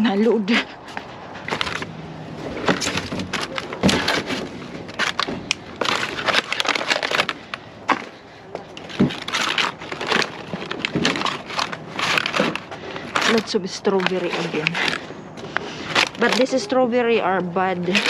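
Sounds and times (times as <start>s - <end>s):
plastic packaging rustling: 0.8s - 18.0s
boxes knocking: 1.5s - 7.3s, 7.9s - 14.8s.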